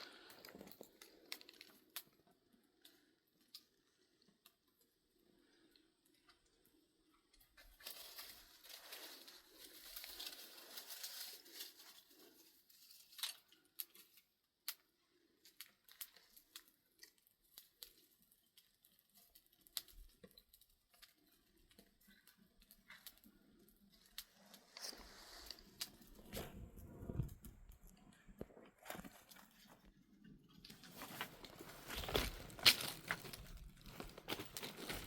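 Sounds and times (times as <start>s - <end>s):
faint rustling and crackling: 0.0s - 35.0s
sharp clicks and snaps: 13.1s - 28.5s.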